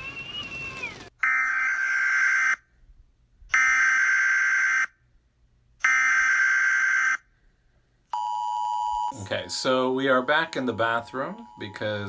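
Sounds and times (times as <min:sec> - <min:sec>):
phone emergency alert buzzing tones: 0:08.2 - 0:12.0.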